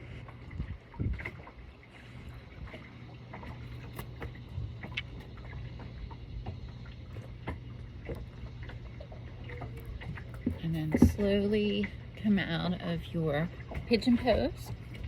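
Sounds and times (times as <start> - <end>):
light water sounds: 0.0 - 15.0
steady low hum: 0.0 - 15.0.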